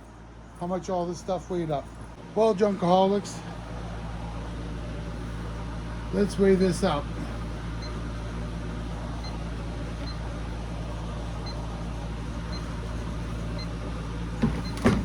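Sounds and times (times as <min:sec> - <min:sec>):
room background hum: 0:00.0 - 0:15.0
short knocks: 0:14.4 - 0:15.0.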